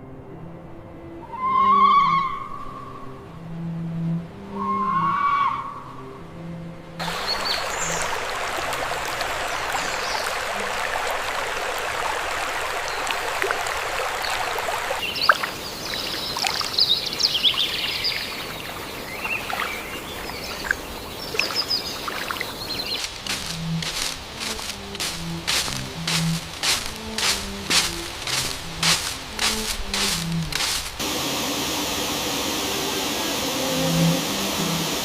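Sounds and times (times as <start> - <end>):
birds chirping: 7.0 - 11.2, 12.6 - 31.0
stream water rushing: 7.0 - 35.0.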